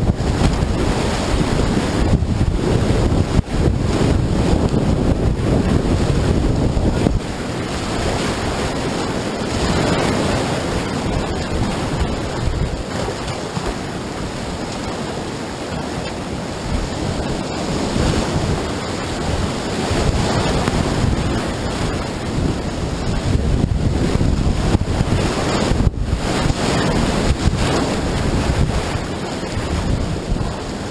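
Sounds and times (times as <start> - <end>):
whitewater rapids rushing: 0.0 - 30.9
wind buffeting microphone: 0.0 - 30.9.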